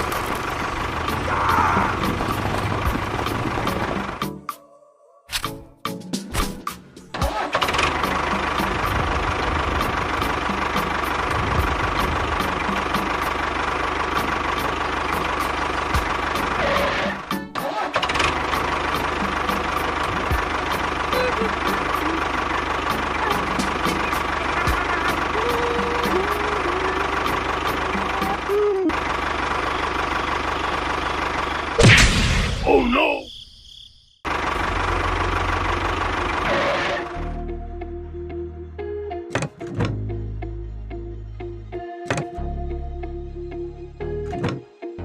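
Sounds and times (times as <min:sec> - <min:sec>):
small engine idling: 0:00.0 - 0:04.3, 0:07.2 - 0:31.8, 0:34.2 - 0:37.3.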